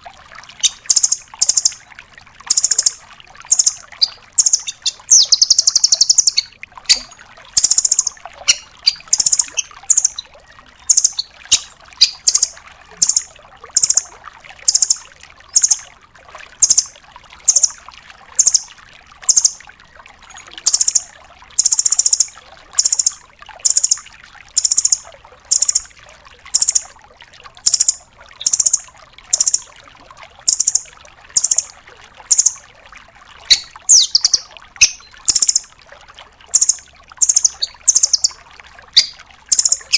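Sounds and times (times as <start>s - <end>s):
bird calling high-pitched notes: 0.6s - 1.8s, 2.5s - 14.1s, 14.7s - 15.8s, 18.4s - 18.7s, 19.3s - 19.6s, 20.3s - 24.0s, 24.6s - 25.9s, 26.6s - 26.9s, 27.7s - 29.7s, 30.5s - 31.7s, 32.3s - 32.6s, 33.5s - 35.7s, 36.5s - 38.4s, 39.0s - 39.9s.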